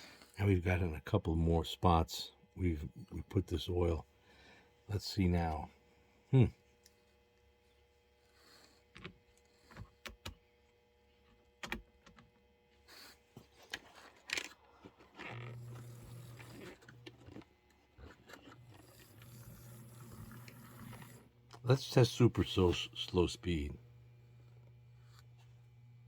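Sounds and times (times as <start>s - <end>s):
small electric motor humming: 8.1s - 10.7s, 12.8s - 26.0s.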